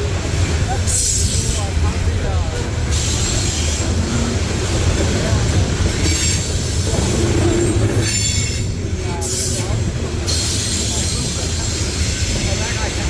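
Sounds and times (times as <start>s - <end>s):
train wheels rumbling on rail: 0.0s - 13.0s
high wheel squeal: 5.9s - 12.7s.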